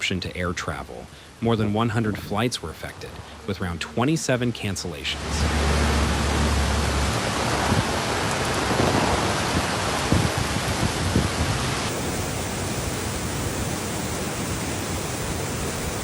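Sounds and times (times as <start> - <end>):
heavy rain hiss: 0.0 - 16.0
wind gusts: 5.2 - 16.0.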